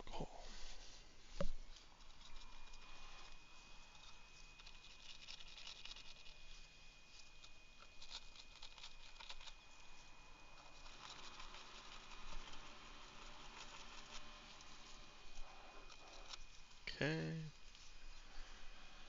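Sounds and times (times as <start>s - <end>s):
steady high-pitched whine: 0.0s - 19.0s
small brush scrubbing: 0.4s - 16.8s.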